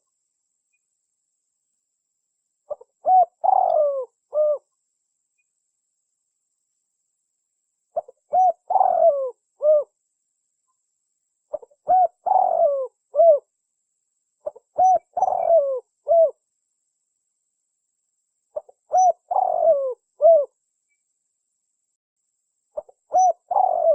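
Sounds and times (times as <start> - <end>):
dove cooing: 2.7 - 4.7, 8.0 - 10.0, 11.5 - 13.4, 14.4 - 16.4, 18.6 - 20.5, 22.8 - 23.9.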